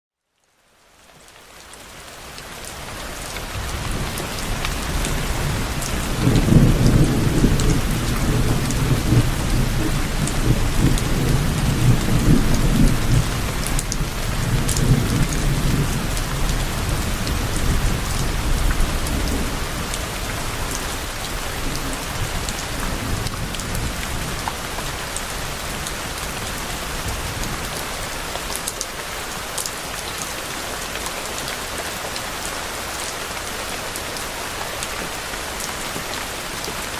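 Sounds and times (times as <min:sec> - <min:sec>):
steady rain falling: 0:00.2 - 0:36.9
distant thunder rumbling: 0:03.6 - 0:24.3.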